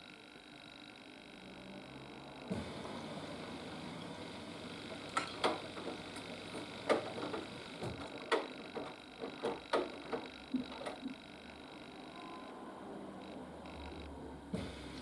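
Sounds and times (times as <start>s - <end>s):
washing machine drum humming: 2.2s - 15.0s
laundry tumbling knocks: 5.0s - 11.2s.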